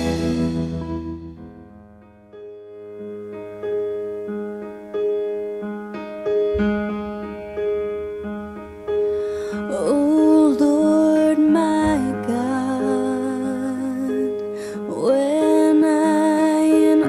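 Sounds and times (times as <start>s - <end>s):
piano playing slow chords: 0.0s - 17.0s
person singing: 9.5s - 17.0s.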